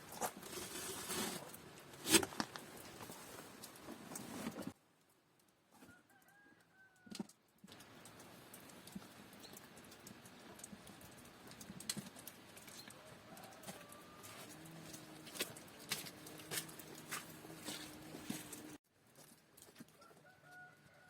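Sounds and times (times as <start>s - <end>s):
rooster crowing faintly: 12.9s - 18.8s, 20.0s - 21.0s.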